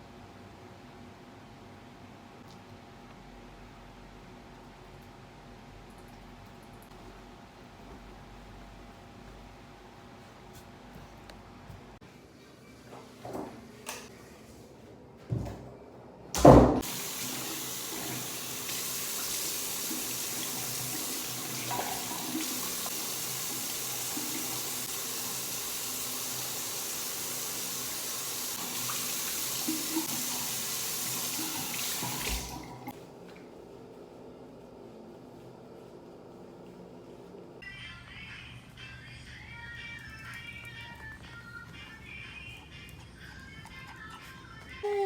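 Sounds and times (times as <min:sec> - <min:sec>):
tap water running into sink: 0:16.8 - 0:33.0.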